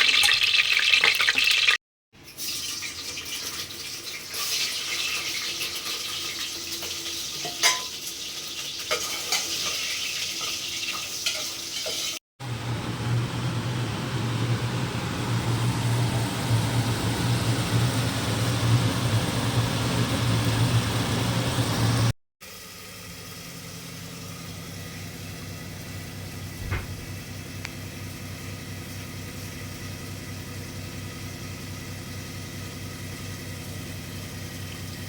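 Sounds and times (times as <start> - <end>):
metal utensils clinking on cookware: 4.3 - 8.0, 8.8 - 12.2
low hum: 12.4 - 22.1.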